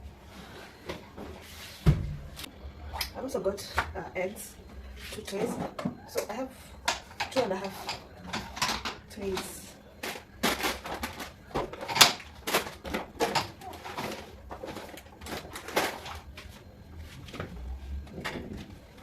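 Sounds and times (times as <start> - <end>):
items being handled and set down: 5.0 - 19.0.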